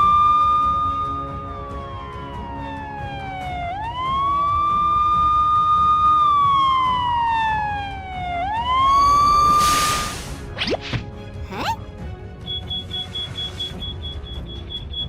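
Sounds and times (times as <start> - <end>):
police siren wailing: 0.0 - 10.0.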